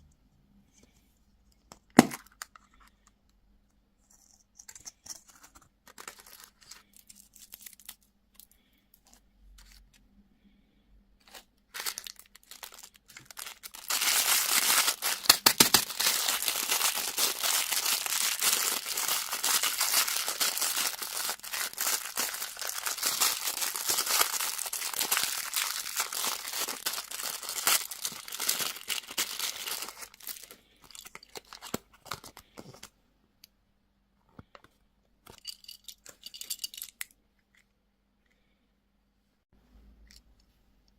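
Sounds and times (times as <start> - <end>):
candy wrapper crinkling and tearing: 4.7 - 8.8, 11.2 - 32.9.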